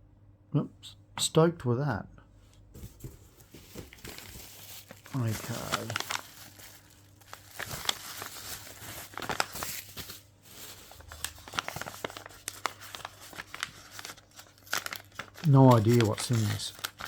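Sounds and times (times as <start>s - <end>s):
packaging crinkling and tearing: 3.6s - 17.0s.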